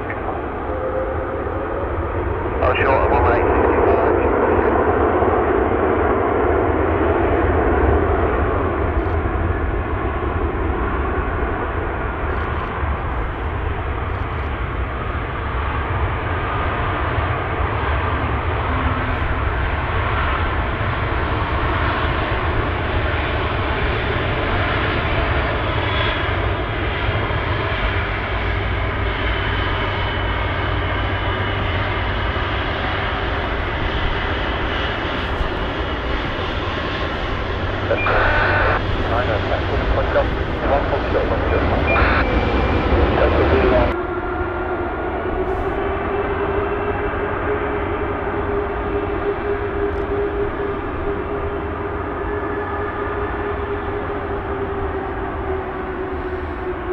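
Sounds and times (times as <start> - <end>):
jet engines roaring: 0.0 - 56.9
faint high whine: 34.8 - 44.0.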